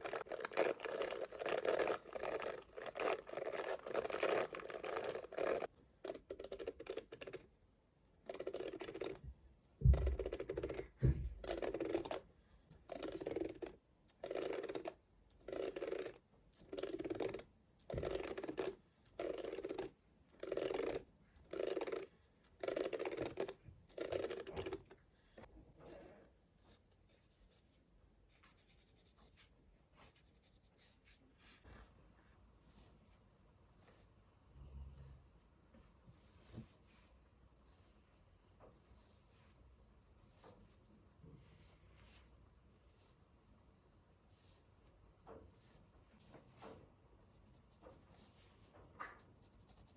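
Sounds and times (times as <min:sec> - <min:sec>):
comb scratching: 0:00.0 - 0:07.5, 0:12.9 - 0:25.0.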